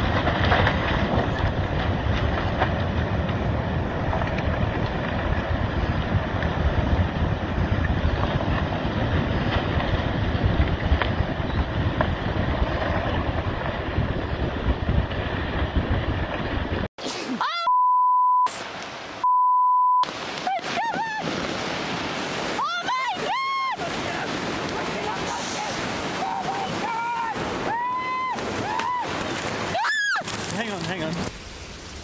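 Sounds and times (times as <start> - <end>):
long high beeps: 17.5 - 18.6, 19.2 - 20.0
waves: 18.5 - 19.3, 20.0 - 32.0
wind rushing: 20.1 - 29.7.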